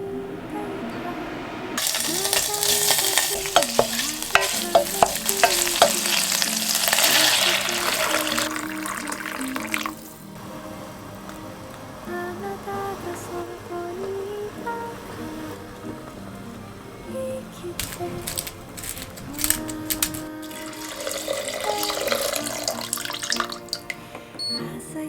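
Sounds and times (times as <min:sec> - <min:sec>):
utensil clicking against pan: 0:01.8 - 0:06.2
food sizzling in a hot pan: 0:01.8 - 0:10.5, 0:17.8 - 0:24.0.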